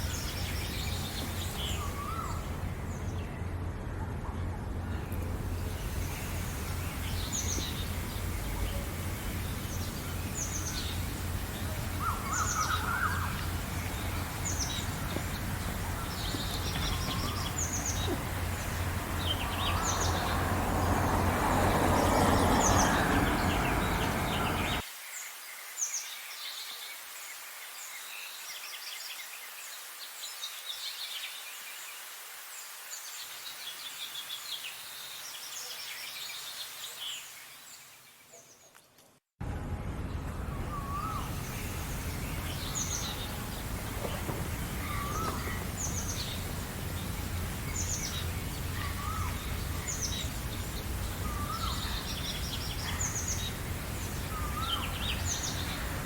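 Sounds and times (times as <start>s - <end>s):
songbirds chirping and singing: 0.0s - 3.7s, 4.4s - 24.8s, 40.5s - 56.0s.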